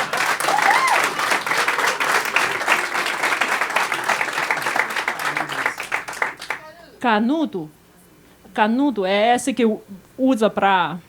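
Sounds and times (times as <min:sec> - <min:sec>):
audience applauding: 0:00.0 - 0:06.6
crowd cheer: 0:00.0 - 0:06.6.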